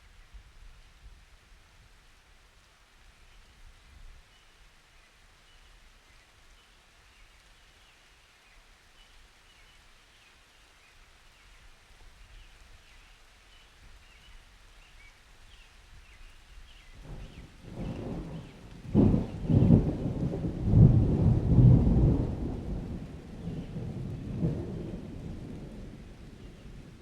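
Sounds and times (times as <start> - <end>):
light rain hissing: 0.0 - 27.0
low thunder rumble: 17.0 - 27.0.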